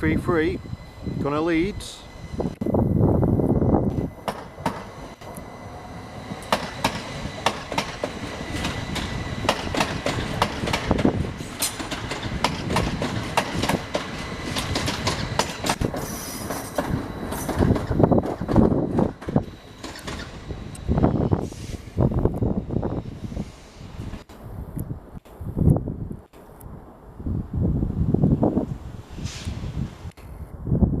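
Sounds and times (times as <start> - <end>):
train wheels clattering over rail joints: 3.9 - 5.4, 6.3 - 20.8.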